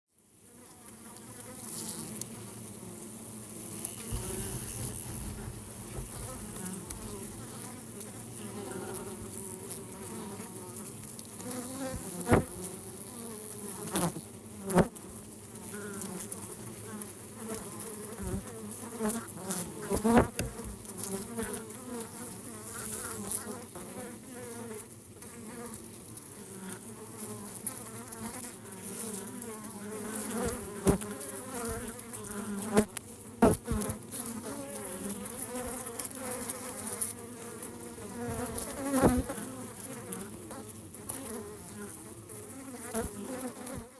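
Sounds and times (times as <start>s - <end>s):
honeybees buzzing: 1.0s - 14.9s, 26.5s - 43.9s.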